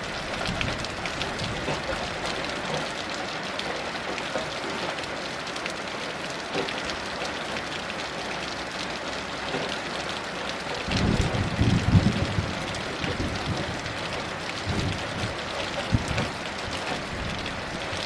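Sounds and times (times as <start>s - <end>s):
heavy rain on a hard surface: 0.0s - 18.0s.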